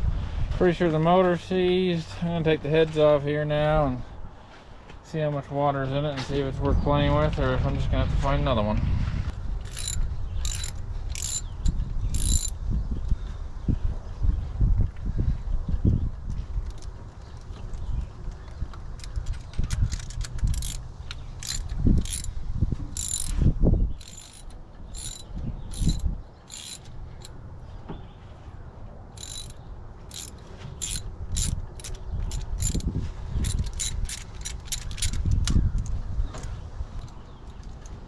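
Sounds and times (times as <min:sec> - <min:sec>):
socket ratchet clicking: 0:09.6 - 0:12.6, 0:19.0 - 0:23.4, 0:24.0 - 0:27.4, 0:29.2 - 0:35.9.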